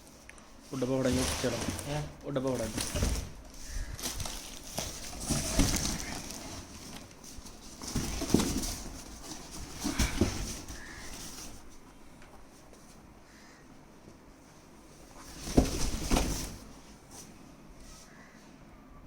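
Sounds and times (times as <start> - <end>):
cardboard box rustling and knocking: 2.6 - 11.7, 15.2 - 16.7.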